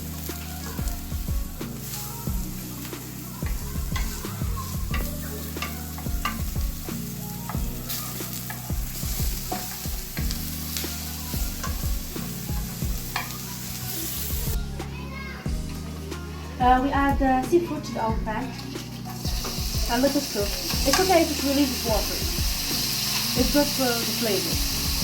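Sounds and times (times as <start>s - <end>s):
food sizzling in a pan: 0.0s - 25.0s.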